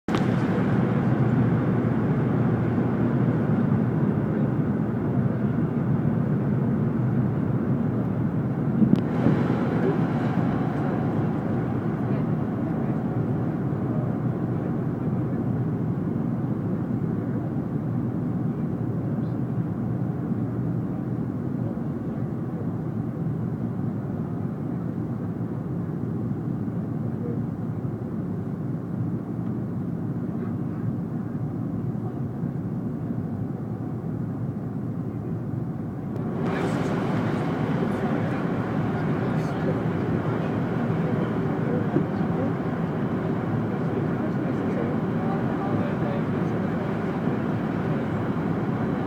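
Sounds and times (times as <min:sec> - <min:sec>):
jet engines droning: 0:00.0 - 0:49.0
airflow rushing over fuselage: 0:08.4 - 0:15.0, 0:36.2 - 0:49.0.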